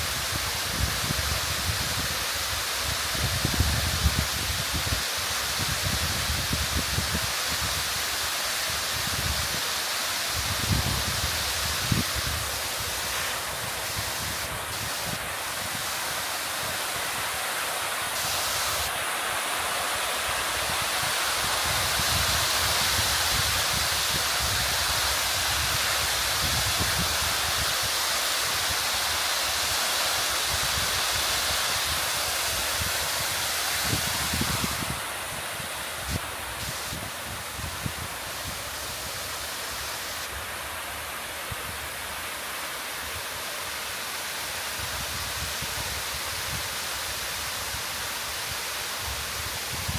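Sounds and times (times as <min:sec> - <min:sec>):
waterfall rushing: 0:00.0 - 0:49.9
wind buffeting microphone: 0:32.8 - 0:40.2.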